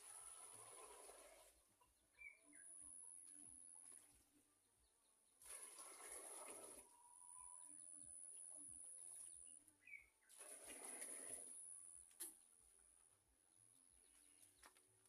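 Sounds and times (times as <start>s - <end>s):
soft bird chirps: 1.8s - 5.6s, 6.9s - 10.6s.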